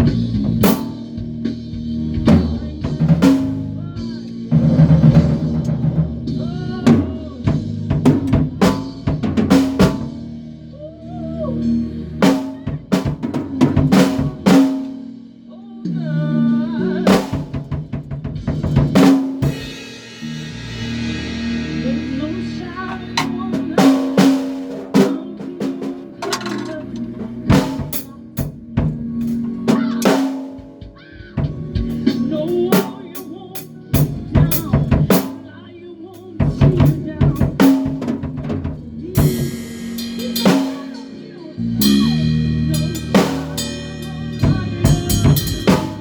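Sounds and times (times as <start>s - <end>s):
drum kit hits: 0.0s - 10.4s, 12.2s - 15.2s, 17.1s - 35.6s, 36.2s - 46.0s
bass line low notes: 0.0s - 15.2s, 20.2s - 24.0s, 26.7s - 29.8s, 30.6s - 32.8s, 41.6s - 46.0s
pitched instruments playing: 0.0s - 46.0s.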